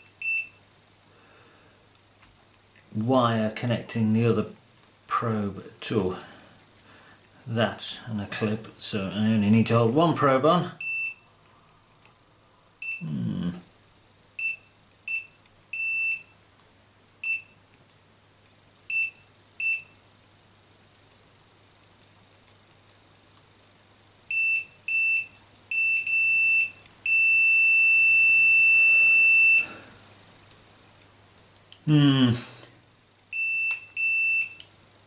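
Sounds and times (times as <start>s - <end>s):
multimeter continuity beeps: 0.0s - 0.6s, 10.8s - 11.3s, 12.7s - 13.1s, 14.2s - 16.5s, 17.1s - 17.6s, 18.8s - 20.0s, 24.3s - 29.7s, 33.2s - 34.7s.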